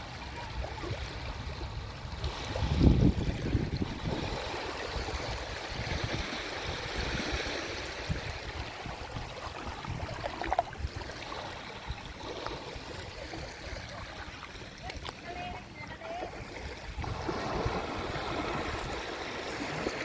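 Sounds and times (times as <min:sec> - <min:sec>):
sea waves lapping on shore: 0:00.0 - 0:20.0.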